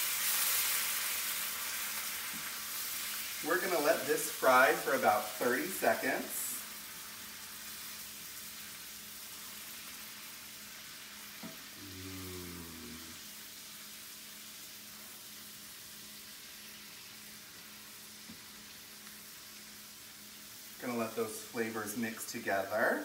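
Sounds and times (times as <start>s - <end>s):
capers sizzling in butter: 0.0s - 23.0s.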